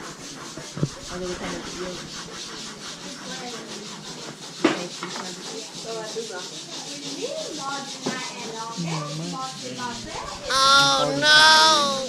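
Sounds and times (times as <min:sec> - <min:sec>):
scratchy rubbing noise: 0:00.0 - 0:05.4
faint voices murmuring: 0:00.0 - 0:12.0.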